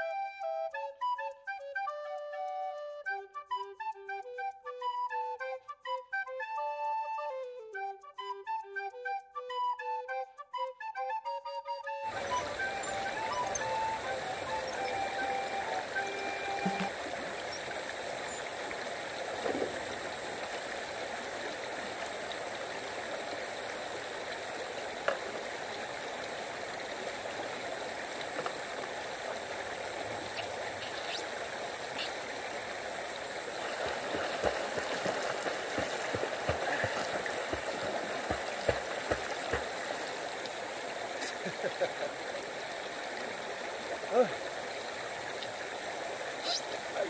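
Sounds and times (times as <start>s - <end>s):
flowing river water: 11.9s - 47.0s
water splashing: 12.1s - 47.0s.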